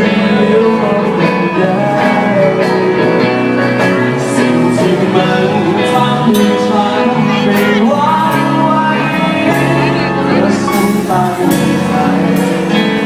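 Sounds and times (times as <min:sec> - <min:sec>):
acoustic guitar strumming: 0:00.0 - 0:13.0
person singing: 0:00.0 - 0:13.0.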